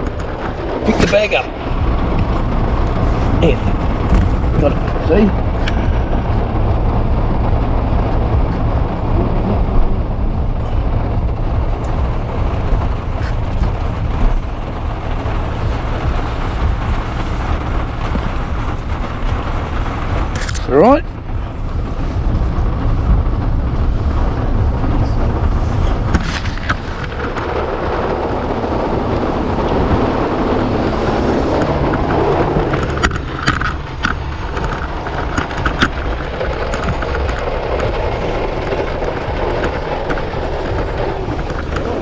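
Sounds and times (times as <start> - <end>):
sharp clicks and knocks: 0.0 - 6.8, 25.4 - 42.0
vehicle rumbling: 0.0 - 42.0.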